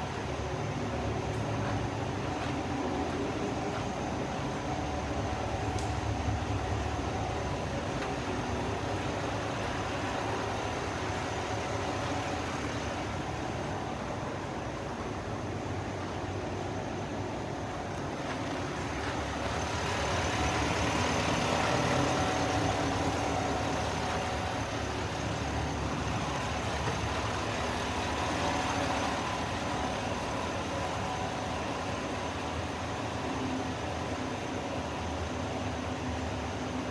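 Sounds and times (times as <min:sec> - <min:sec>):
pickup truck engine running: 0:17.6 - 0:36.9.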